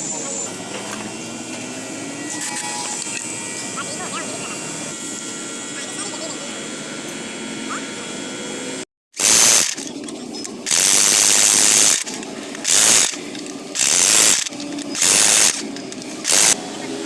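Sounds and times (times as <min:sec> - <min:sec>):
ratchet wrench clicking: 0:09.2 - 0:16.6.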